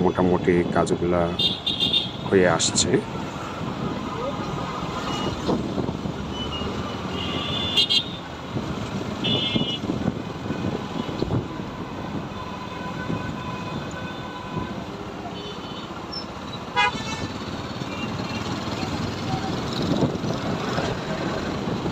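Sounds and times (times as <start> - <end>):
motorcycle road and wind noise: 0.0 - 21.9
vehicle horn honks: 7.1 - 8.2, 9.2 - 9.8, 16.8 - 17.3.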